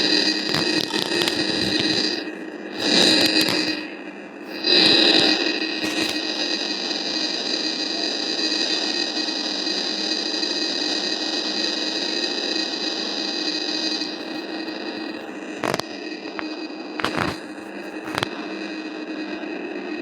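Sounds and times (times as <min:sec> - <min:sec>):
factory machinery hum: 0:00.0 - 0:20.0
high steady whining tones: 0:00.0 - 0:20.0.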